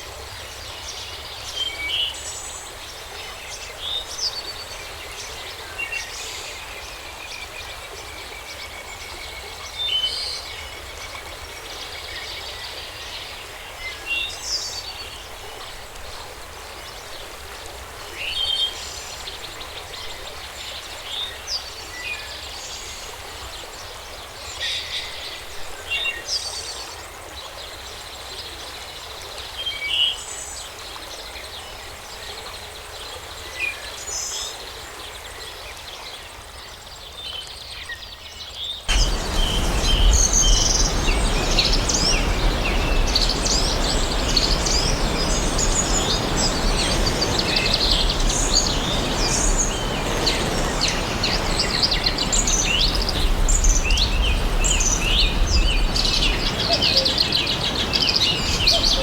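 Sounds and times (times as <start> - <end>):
fuller forest ambience: 0.0 - 59.0
birds chirping: 38.9 - 59.0
steady background hiss: 38.9 - 59.0.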